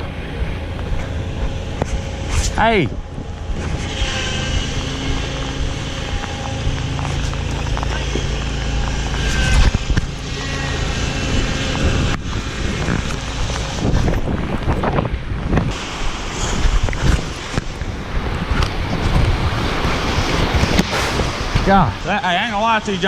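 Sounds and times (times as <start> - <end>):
wind buffeting microphone: 11.2 - 22.8.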